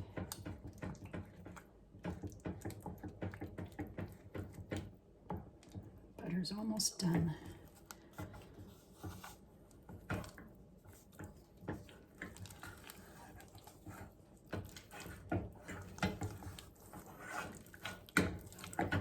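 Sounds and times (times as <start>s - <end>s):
utensil stirring thick mixture: 0.0s - 6.2s, 7.5s - 19.0s
utensil scraping and knocking pot: 10.9s - 19.0s.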